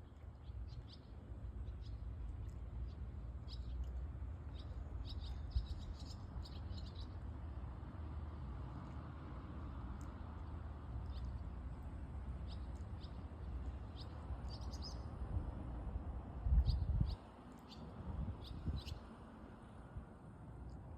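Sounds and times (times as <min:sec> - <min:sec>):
small birds chirping: 0:00.0 - 0:07.3, 0:10.0 - 0:15.2, 0:16.6 - 0:19.1.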